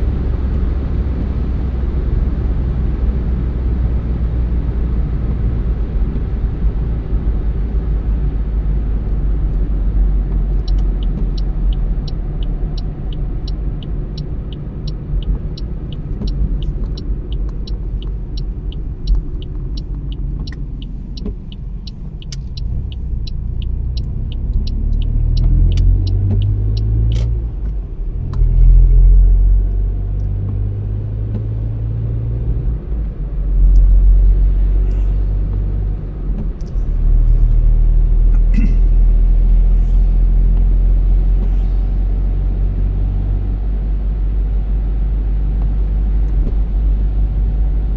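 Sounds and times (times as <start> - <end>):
road and engine rumble: 0.0 - 47.9
turn signal ticking: 4.5 - 39.6, 40.2 - 47.9.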